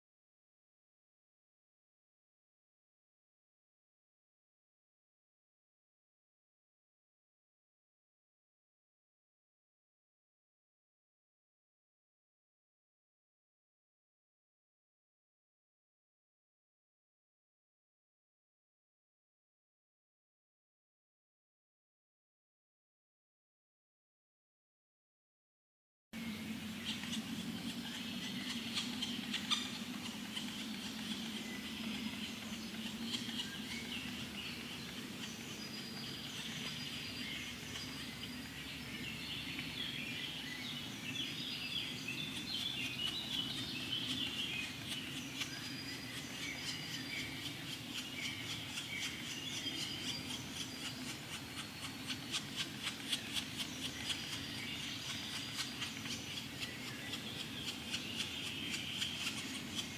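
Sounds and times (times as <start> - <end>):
woodpecker chicks chirping: 26.2 - 59.9.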